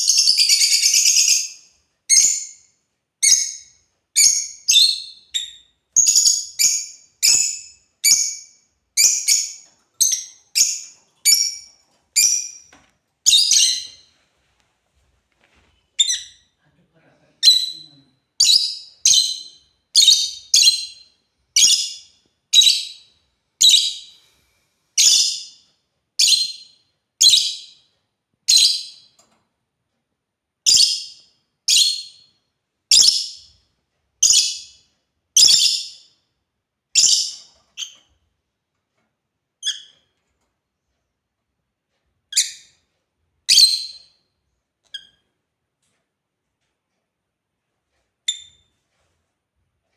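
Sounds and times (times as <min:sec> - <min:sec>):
lovebirds chirping: 0:00.0 - 0:14.1, 0:15.8 - 0:16.6, 0:17.3 - 0:24.2, 0:25.0 - 0:25.5, 0:35.4 - 0:36.0, 0:37.0 - 0:38.1.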